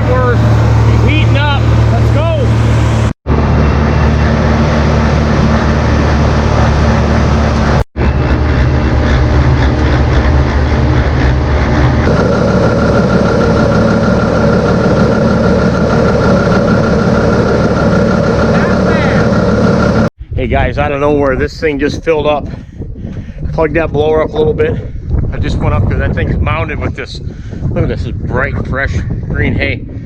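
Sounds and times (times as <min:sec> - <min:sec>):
steady higher whine: 0:00.0 - 0:20.1
tractor engine running: 0:00.0 - 0:20.1.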